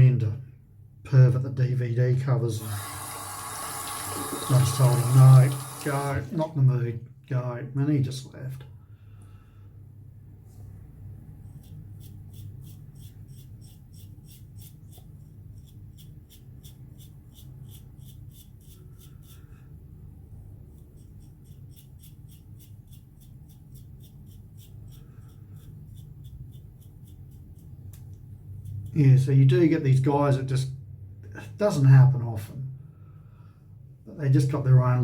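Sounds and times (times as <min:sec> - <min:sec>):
razor scraping stubble: 0:02.6 - 0:06.3, 0:11.5 - 0:19.6, 0:20.7 - 0:29.0
steady low hum: 0:04.2 - 0:31.6.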